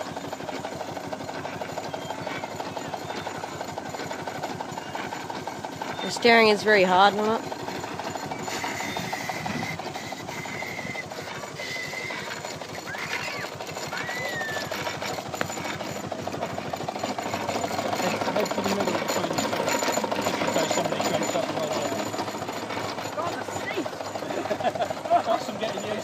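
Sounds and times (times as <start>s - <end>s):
steam locomotive exhaust beat: 0.0s - 13.0s
locomotive motion clatter: 0.0s - 26.0s.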